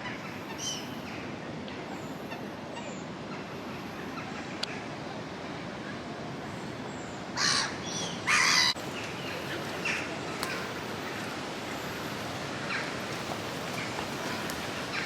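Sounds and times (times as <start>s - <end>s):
outdoor background rush: 0.0s - 15.0s
crow cawing: 7.4s - 8.8s.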